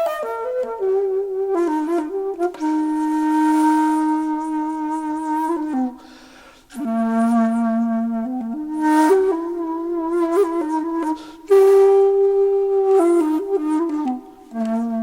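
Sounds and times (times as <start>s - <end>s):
flute playing long held notes: 0.0s - 6.1s, 6.7s - 15.0s.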